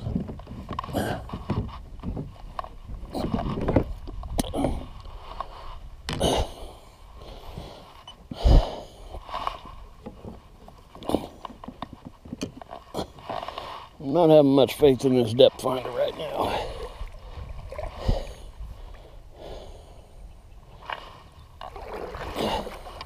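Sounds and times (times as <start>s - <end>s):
gear knocking in a kayak: 0.0s - 5.5s, 9.3s - 13.7s.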